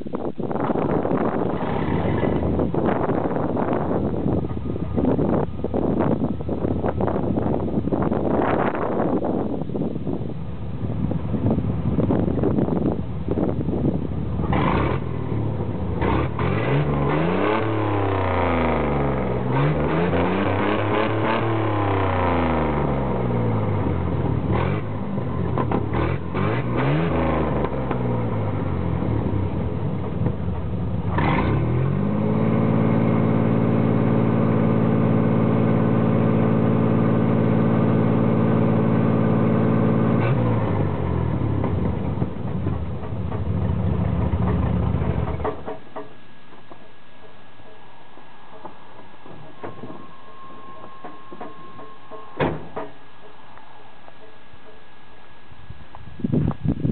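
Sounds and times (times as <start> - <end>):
engine revving through rusty exhaust: 0.6 - 46.0.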